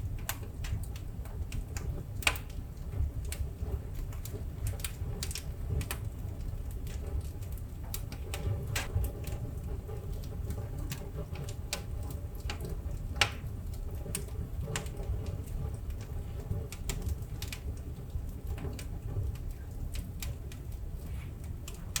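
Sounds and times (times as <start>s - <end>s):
burning logs crackling and popping: 0.0s - 22.0s
low rumble of flames: 0.0s - 22.0s.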